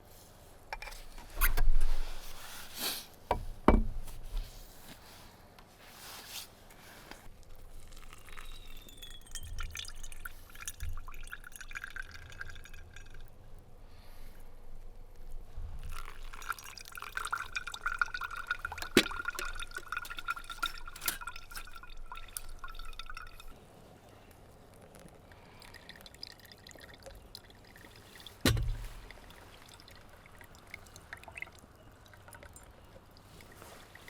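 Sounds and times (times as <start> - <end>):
liquid pouring and dripping: 7.3 - 13.8, 15.2 - 23.6, 24.8 - 34.0
sharp knock: 28.5 - 29.0.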